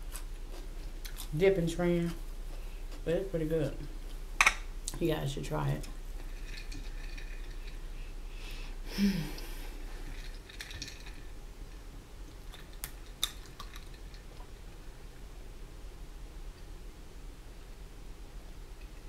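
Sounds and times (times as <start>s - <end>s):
person chewing: 0.0s - 1.4s.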